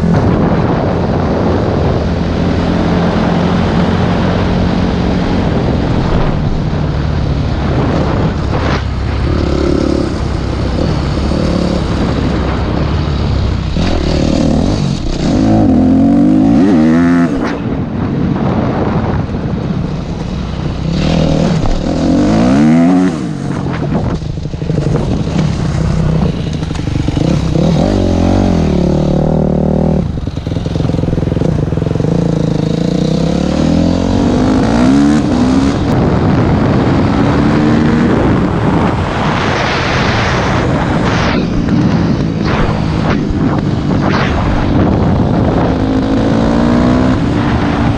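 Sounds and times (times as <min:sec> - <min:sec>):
dirt bike engine revving: 0:07.6 - 0:17.8, 0:20.6 - 0:47.9.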